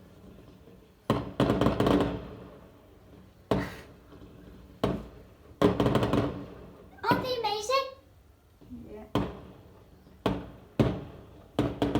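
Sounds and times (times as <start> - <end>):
fireworks bangs: 0.0 - 7.5, 9.1 - 11.9
fireworks crackles: 0.0 - 7.7, 9.1 - 11.9.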